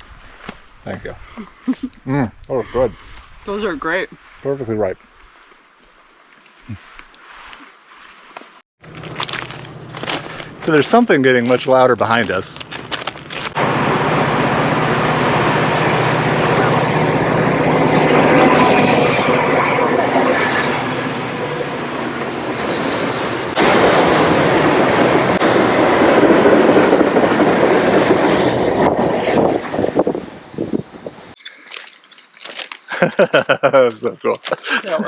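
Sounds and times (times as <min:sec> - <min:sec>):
train engine drone: 0:08.8 - 0:31.4
train wheels rolling on rails: 0:08.9 - 0:31.3
wheel squeal: 0:16.6 - 0:23.6, 0:29.5 - 0:30.3.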